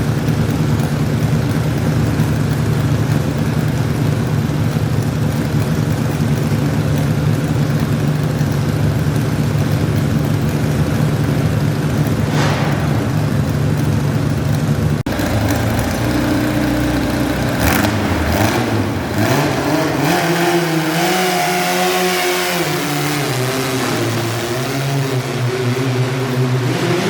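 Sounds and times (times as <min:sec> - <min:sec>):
tractor engine revving: 0:00.0 - 0:27.0.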